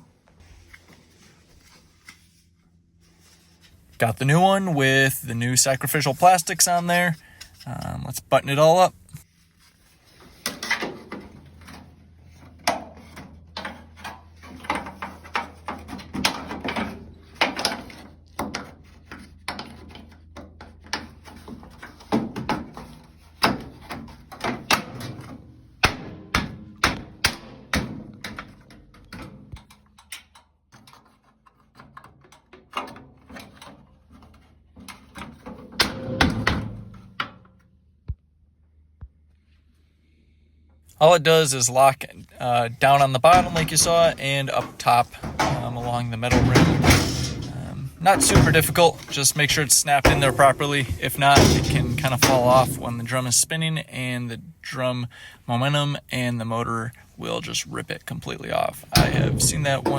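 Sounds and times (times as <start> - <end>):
metal and plastic parts clunking: 10.1 - 37.6, 41.8 - 53.4, 58.4 - 59.9.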